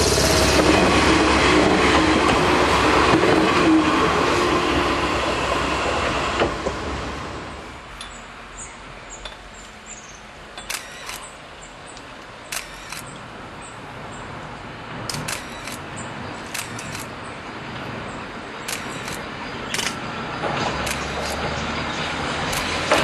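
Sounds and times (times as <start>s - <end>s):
railcar running noise: 0.0s - 23.0s
sharp clicks: 16.5s - 17.1s, 18.7s - 20.0s.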